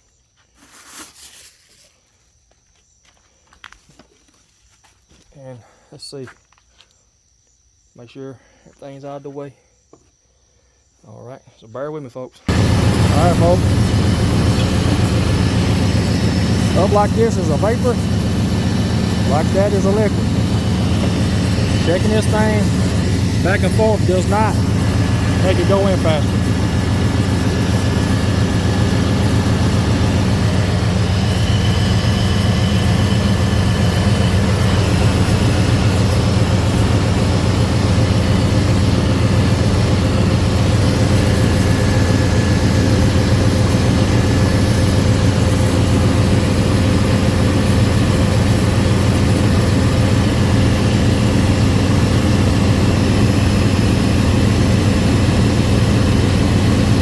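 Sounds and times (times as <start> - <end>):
car engine idling: 12.5 - 57.0.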